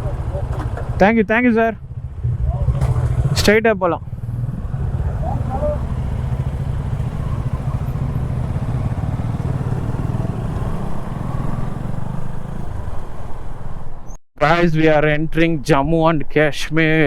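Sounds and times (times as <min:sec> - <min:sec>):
motorcycle engine running: 0:00.0 - 0:13.2
road and wind noise: 0:00.0 - 0:16.4.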